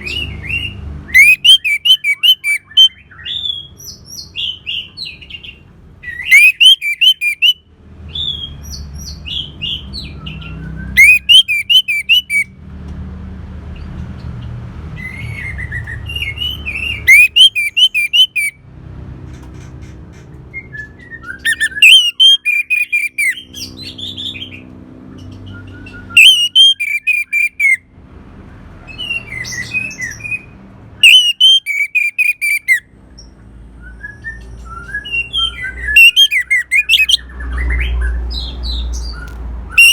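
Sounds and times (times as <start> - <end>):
thrush singing: 1.1 - 2.9, 6.3 - 7.6, 10.9 - 12.4, 16.4 - 18.5, 21.4 - 23.4, 26.1 - 27.8, 31.0 - 32.8, 35.4 - 37.3.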